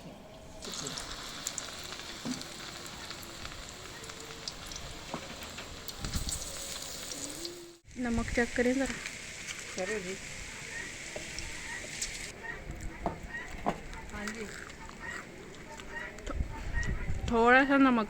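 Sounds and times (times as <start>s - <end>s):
batter frying in hot oil: 0.6s - 12.3s.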